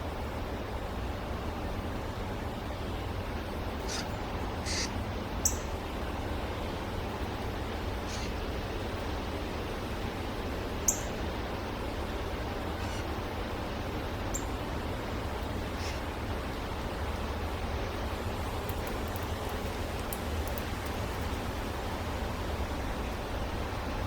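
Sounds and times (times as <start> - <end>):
background hiss: 4.6 - 24.0.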